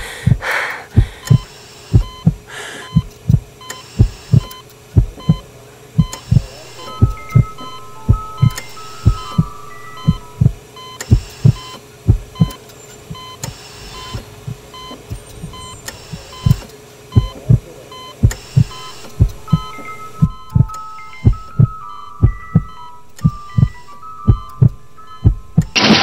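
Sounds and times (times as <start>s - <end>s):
heartbeat thumps: 0.0s - 13.4s, 14.1s - 17.6s, 18.2s - 26.0s
steady hum: 0.0s - 26.0s
short electronic beeps: 6.0s - 11.8s, 15.6s - 17.4s, 18.0s - 26.0s.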